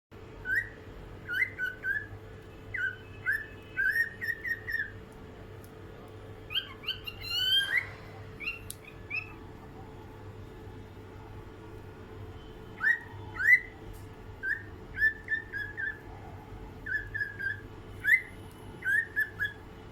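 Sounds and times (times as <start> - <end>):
faint steady hum: 0.2 - 19.9
cockatiel whistling: 0.4 - 2.1, 2.7 - 5.0, 6.5 - 9.4, 12.8 - 13.8, 14.4 - 16.0, 16.8 - 19.6.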